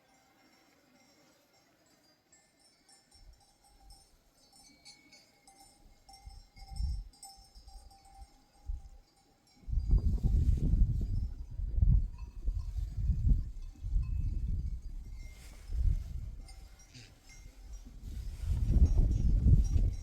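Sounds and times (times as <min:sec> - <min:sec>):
sheep bells jingling: 0:00.0 - 0:20.0
thin steady ringing tone: 0:00.0 - 0:20.0.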